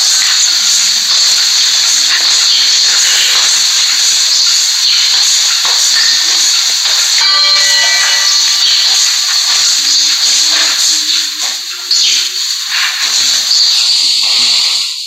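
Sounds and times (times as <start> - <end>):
ceiling fan hiss of air: 0.0 - 15.0.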